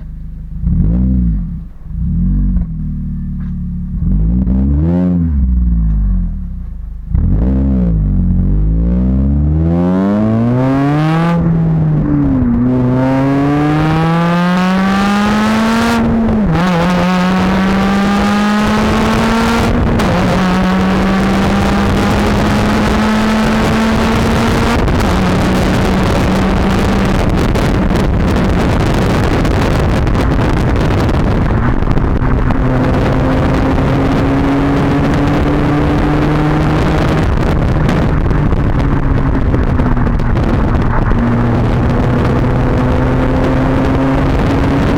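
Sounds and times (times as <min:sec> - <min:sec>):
car engine accelerating through gears: 0:00.0 - 0:44.9.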